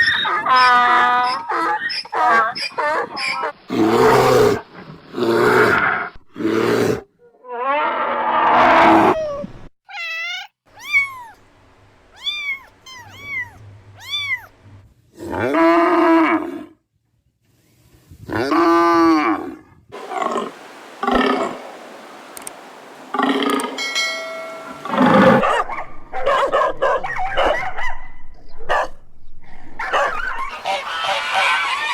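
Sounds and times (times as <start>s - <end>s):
animal roar: 0.2s - 4.6s, 5.2s - 9.2s, 15.2s - 16.8s, 18.3s - 23.8s, 24.6s - 25.6s
cat meows: 9.1s - 11.4s, 12.2s - 14.5s
drawn-out animal calls: 20.0s - 25.6s, 30.5s - 31.9s.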